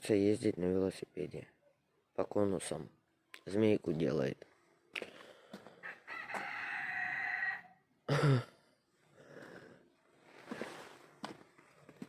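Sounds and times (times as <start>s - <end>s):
rooster crowing: 5.8s - 7.9s.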